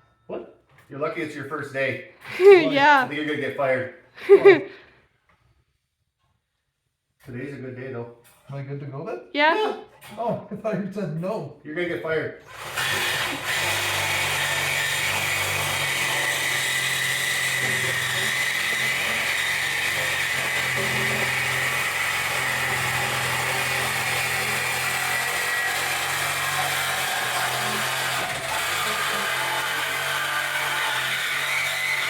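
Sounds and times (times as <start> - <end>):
reciprocating saw cutting metal pipe: 12.5 - 32.0.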